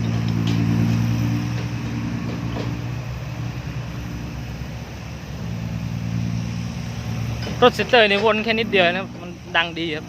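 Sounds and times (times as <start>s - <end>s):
diesel truck engine droning: 0.0s - 10.0s.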